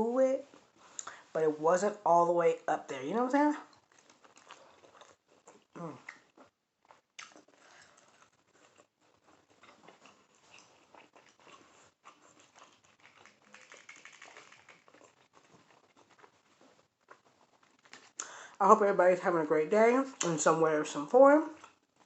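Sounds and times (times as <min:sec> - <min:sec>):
person chewing food: 0:03.7 - 0:18.4, 0:21.6 - 0:22.0.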